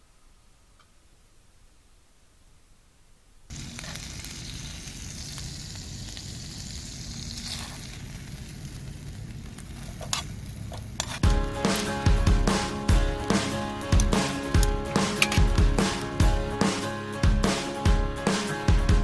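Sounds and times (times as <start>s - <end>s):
pork sizzling over charcoal: 3.5s - 19.0s
music with drums: 11.2s - 19.0s.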